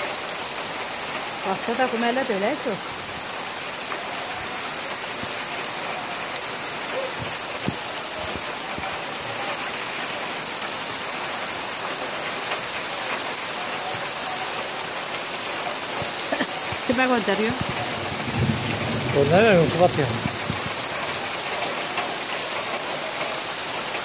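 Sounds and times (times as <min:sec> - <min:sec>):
rain on gravel and grass: 0:00.0 - 0:24.0
close raindrop taps: 0:15.9 - 0:22.2.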